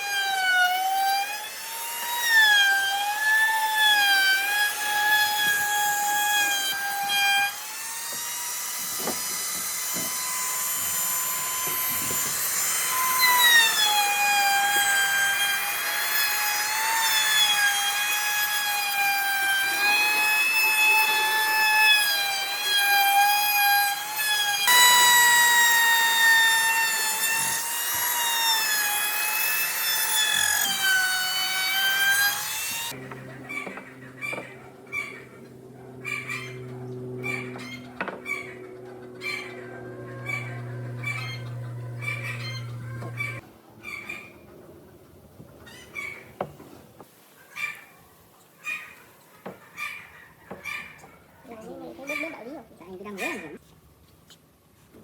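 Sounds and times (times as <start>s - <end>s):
power tool motor whining: 4.2s - 43.4s.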